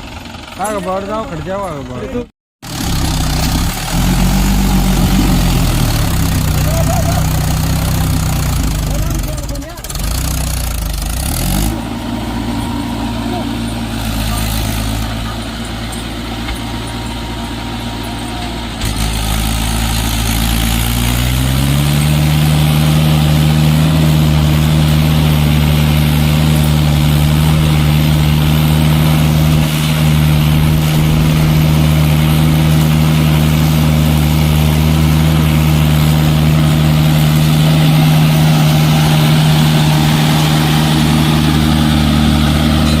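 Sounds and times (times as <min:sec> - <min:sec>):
tractor diesel engine: 0:00.0 - 0:43.0.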